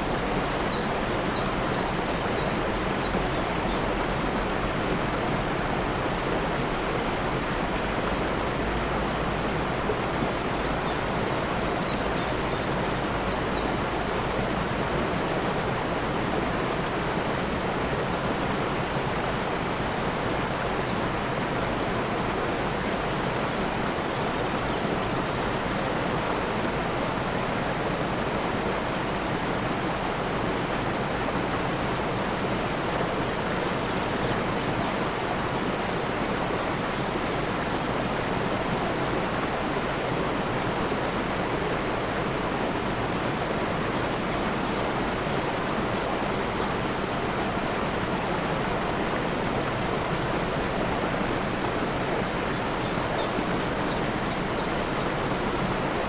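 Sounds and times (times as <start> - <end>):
small bird singing: 0.0 - 4.2, 10.9 - 13.8, 22.8 - 26.4, 27.0 - 38.5, 43.6 - 47.8, 52.4 - 55.1
waterfall rushing: 0.0 - 56.0.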